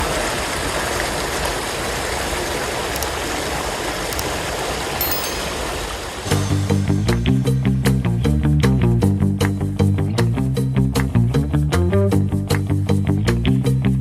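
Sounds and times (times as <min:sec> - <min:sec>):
river water flowing over rocks: 0:00.0 - 0:06.4
plucked guitar and bass music: 0:06.4 - 0:14.0.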